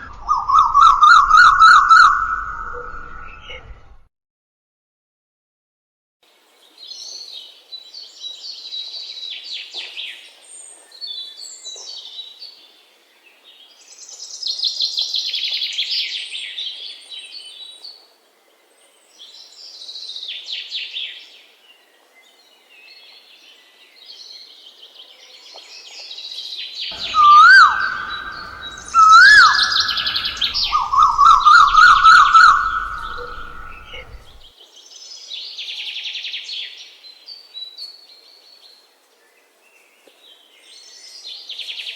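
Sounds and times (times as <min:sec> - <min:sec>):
small birds chirping: 0:06.6 - 0:35.6
bird whistled call: 0:26.9 - 0:34.5.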